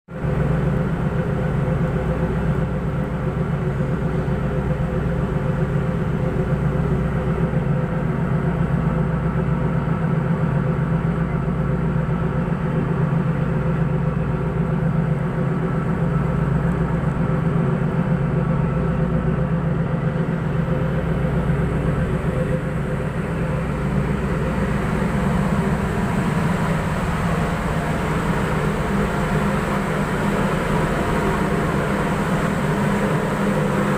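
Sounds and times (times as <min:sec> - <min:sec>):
boat engine droning: 0:00.1 - 0:33.9.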